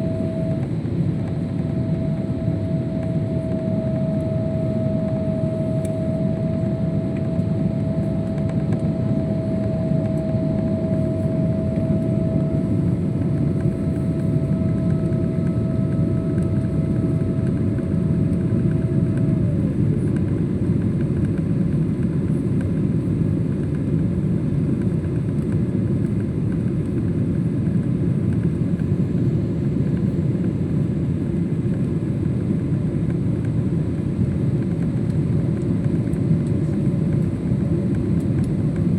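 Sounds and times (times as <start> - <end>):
hum-like tone: 0.0 - 20.8
jet cabin engine and airflow noise: 0.0 - 38.9.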